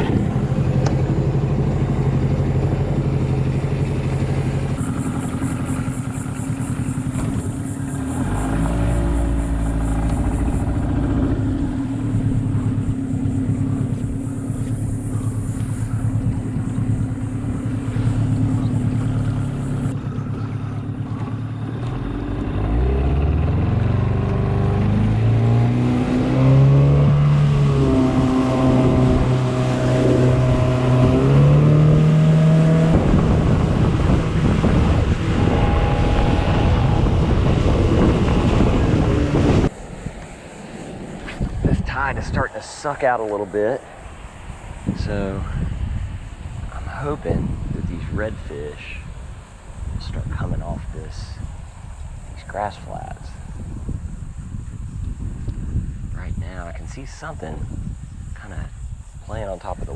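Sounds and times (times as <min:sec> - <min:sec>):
outboard motor running: 0:00.0 - 0:45.7.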